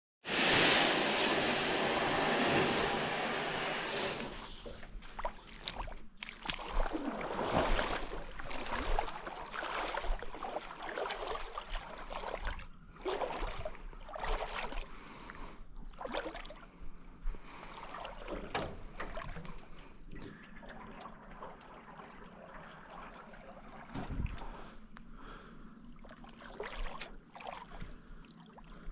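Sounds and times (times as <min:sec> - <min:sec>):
canoe paddle splashing: 0:00.3 - 0:15.3, 0:26.0 - 0:28.0.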